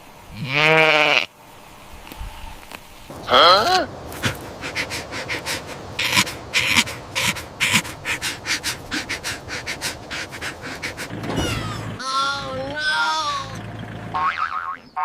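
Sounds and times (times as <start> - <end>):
short breathy huffs: 4.0 - 12.0.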